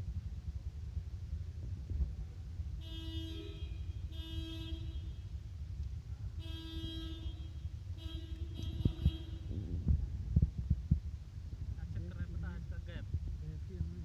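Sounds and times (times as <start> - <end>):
traffic rumble: 0.0 - 14.0
vehicle horn honking: 2.8 - 5.4, 6.4 - 9.8.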